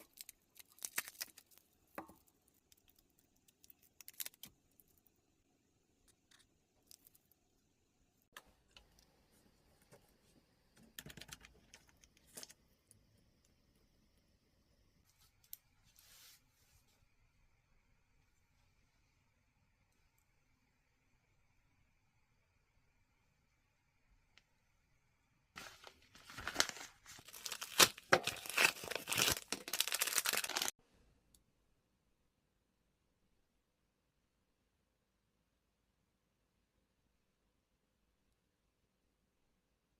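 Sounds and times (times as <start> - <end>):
packaging crinkled and torn: 0.0 - 1.8, 2.6 - 4.5, 25.6 - 30.7.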